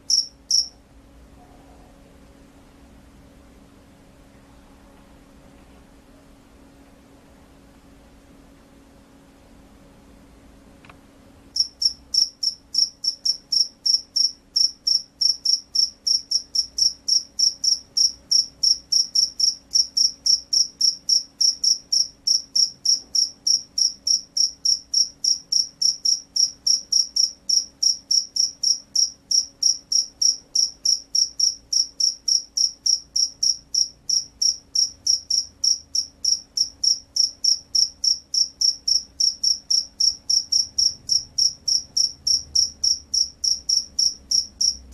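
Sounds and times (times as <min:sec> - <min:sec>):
cricket chirping: 0:00.0 - 0:00.8, 0:11.6 - 0:44.9.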